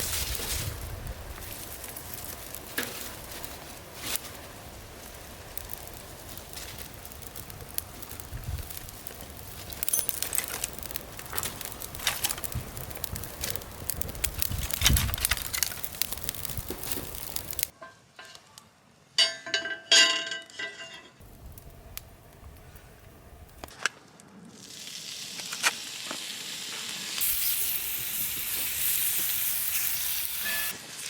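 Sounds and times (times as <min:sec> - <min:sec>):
wood fire crackling and popping: 0:00.0 - 0:17.8, 0:21.2 - 0:31.0
metal or glass clinking: 0:19.2 - 0:21.2.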